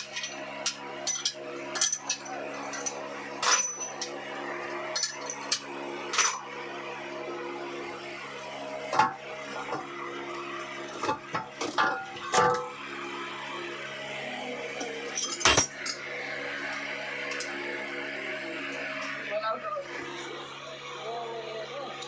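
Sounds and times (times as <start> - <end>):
metal tools clinking: 0.0 - 4.2, 4.9 - 6.4, 15.1 - 16.0.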